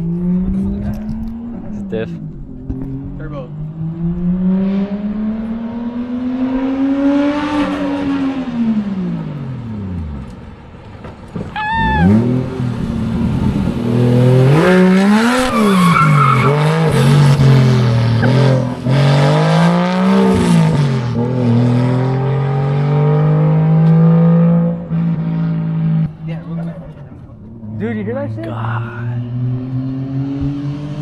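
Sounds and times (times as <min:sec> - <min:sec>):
car engine revving: 0:00.0 - 0:31.0
tyre squeal: 0:11.5 - 0:12.3, 0:14.6 - 0:16.7.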